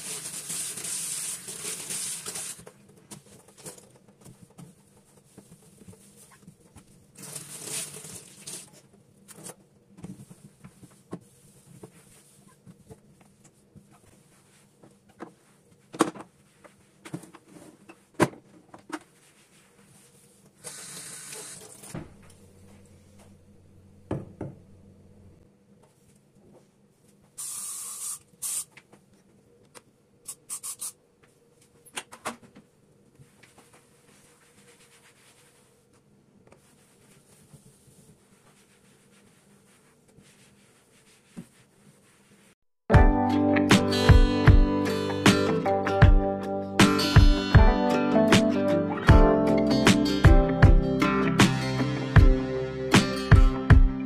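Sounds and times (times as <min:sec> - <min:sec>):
short bursts of hissing: 0:20.6 - 0:21.7, 0:27.4 - 0:28.7, 0:30.3 - 0:31.0.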